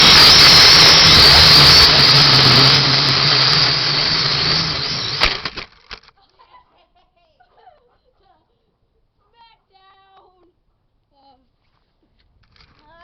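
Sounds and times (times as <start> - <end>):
drone propellers whirring: 0.0 - 5.6.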